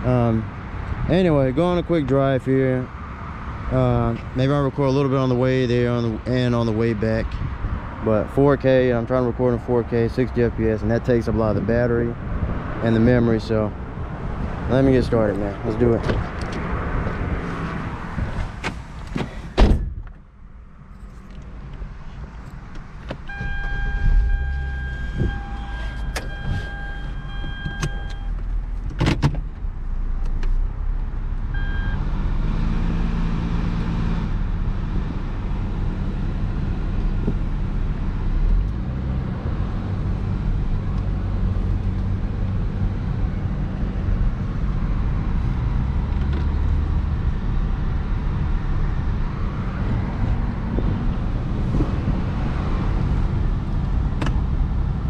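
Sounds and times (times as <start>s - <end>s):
car engine driving: 0.0s - 55.0s
road noise: 0.0s - 55.0s
electronic warning chime: 23.3s - 28.3s.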